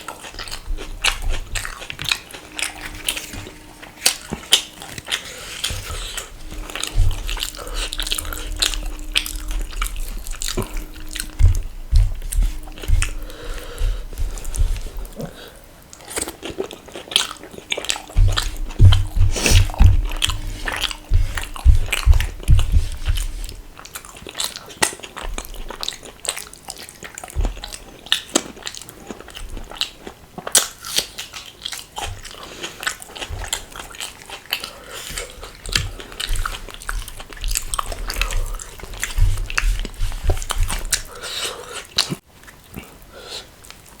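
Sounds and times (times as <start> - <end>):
person chewing food: 0.0 - 44.0
low thuds: 5.7 - 15.4, 18.1 - 23.8, 35.2 - 41.1.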